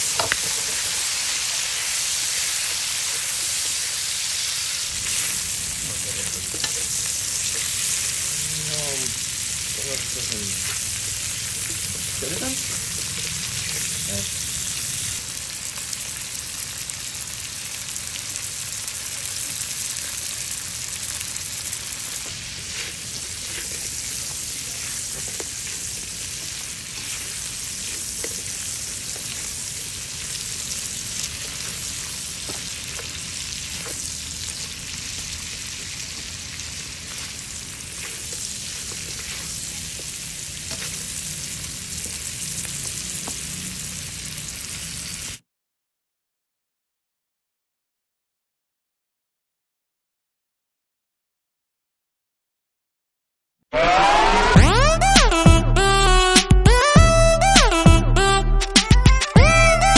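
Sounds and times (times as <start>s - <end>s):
shrimp sizzling in a wok: 0.0s - 45.4s.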